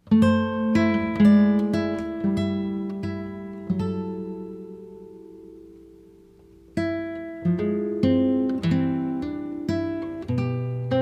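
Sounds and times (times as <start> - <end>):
acoustic guitar notes ringing: 0.0 - 11.0.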